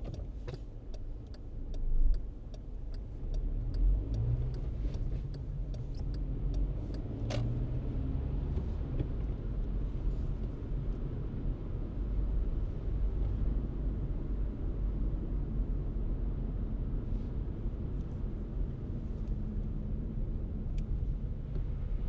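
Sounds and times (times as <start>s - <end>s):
road and engine rumble: 0.0s - 22.0s
regular ticks: 0.9s - 4.7s.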